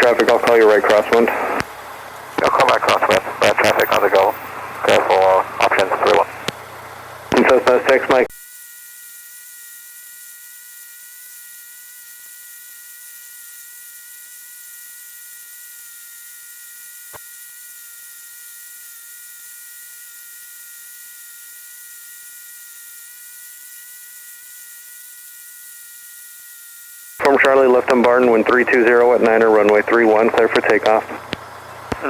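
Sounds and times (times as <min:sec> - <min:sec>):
radio hiss: 0:00.0 - 0:08.4, 0:27.2 - 0:32.0
faint electrical whine: 0:00.0 - 0:32.0.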